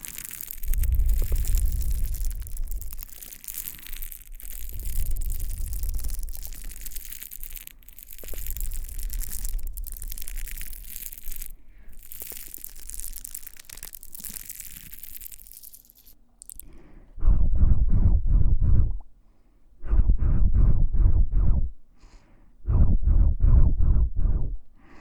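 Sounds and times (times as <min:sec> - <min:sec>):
scratching and rubbing on microphone: 0:00.0 - 0:16.6.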